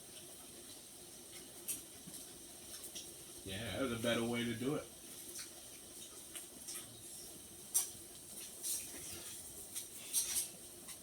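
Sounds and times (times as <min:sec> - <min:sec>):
quiet eating sounds: 0:00.0 - 0:11.0.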